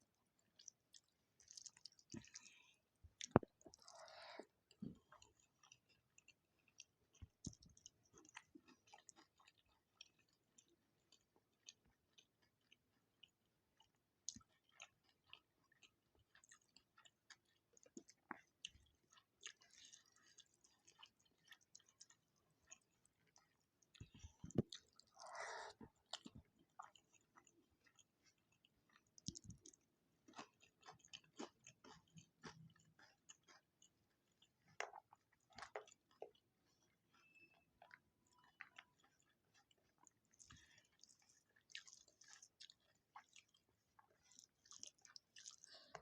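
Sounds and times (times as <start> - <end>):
faint chewing: 0.0 - 46.0
wet mouth clicks and smacks: 0.6 - 2.6, 29.2 - 29.8.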